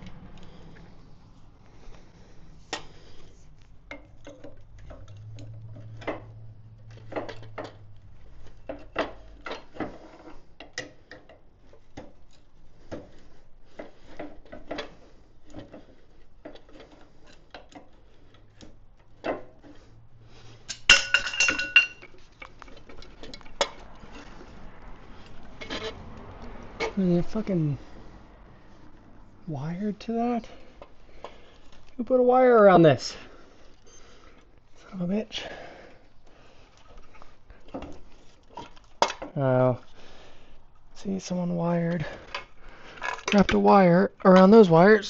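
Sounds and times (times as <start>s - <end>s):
ringing metal clatter: 20.7s - 23.8s.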